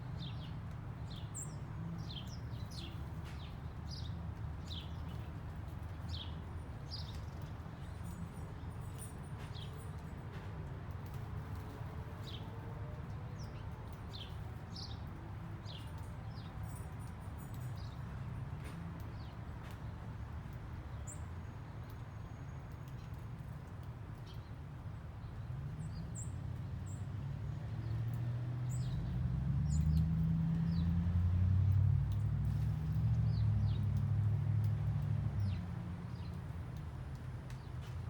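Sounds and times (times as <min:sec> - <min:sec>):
small birds chirping: 0:35.4 - 0:36.6.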